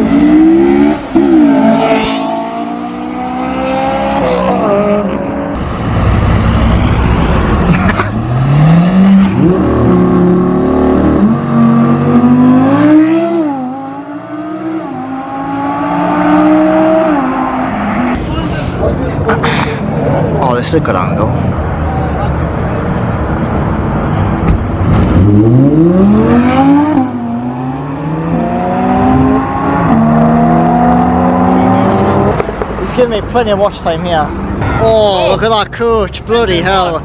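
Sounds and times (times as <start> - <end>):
car engine accelerating hard: 0.0 - 18.4, 23.9 - 32.5.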